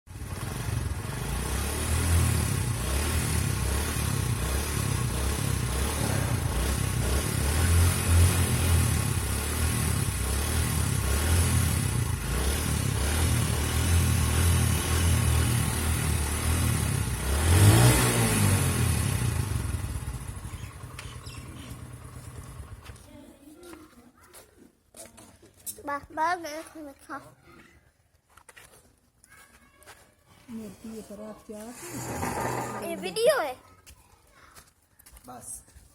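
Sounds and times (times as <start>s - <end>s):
motorcycle engine running: 0.1s - 23.2s.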